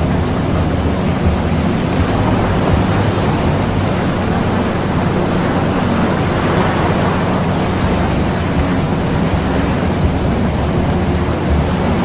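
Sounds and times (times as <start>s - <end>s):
faint low tones: 0.0s - 12.0s
rushing water and wind: 0.0s - 12.0s.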